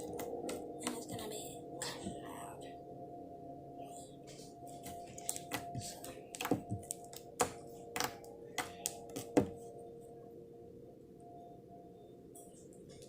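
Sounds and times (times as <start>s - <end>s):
faint steady hum: 0.0s - 13.0s
sharp clicks and taps: 4.8s - 9.5s.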